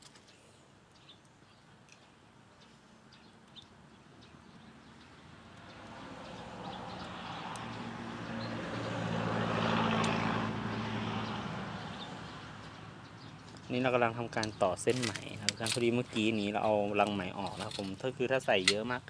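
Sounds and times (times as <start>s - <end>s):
passing motor vehicle hum: 4.3s - 14.7s.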